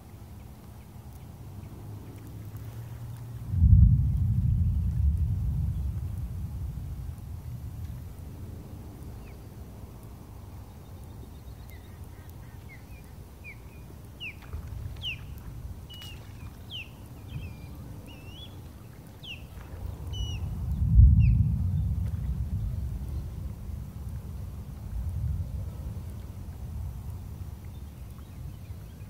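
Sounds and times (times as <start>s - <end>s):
low rumble: 3.4s - 10.0s, 19.6s - 27.3s
birds chirping: 7.5s - 22.0s.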